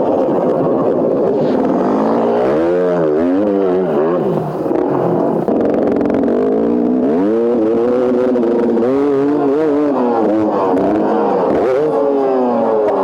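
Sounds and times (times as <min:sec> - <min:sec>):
small dirt bike engine revving: 0:00.7 - 0:13.0.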